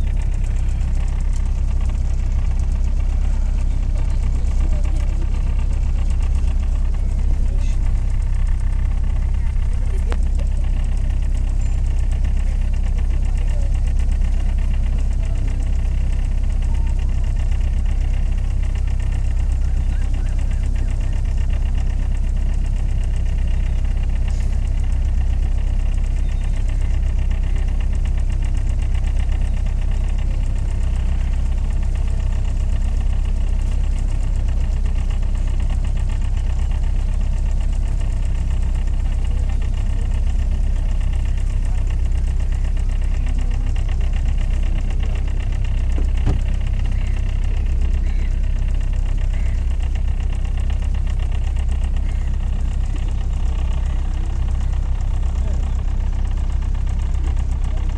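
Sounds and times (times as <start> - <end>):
boat engine rumbling: 0.0 - 57.9.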